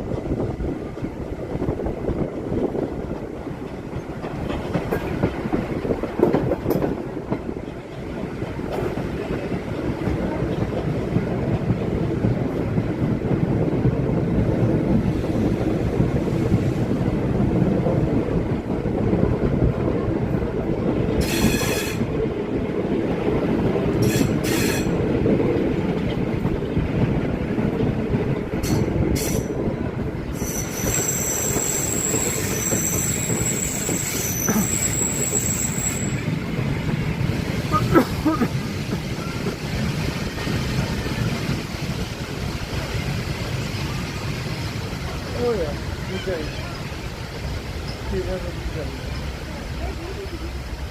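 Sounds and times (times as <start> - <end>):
train rumbling on track: 0.0 - 50.9
train wheels squealing: 21.2 - 22.0, 24.0 - 24.9, 30.4 - 36.3, 39.1 - 39.7.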